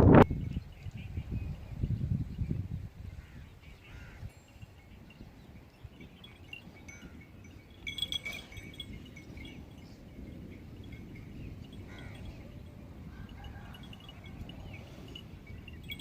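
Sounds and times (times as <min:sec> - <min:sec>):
high ringing tones and chirps: 0:04.0 - 0:16.0.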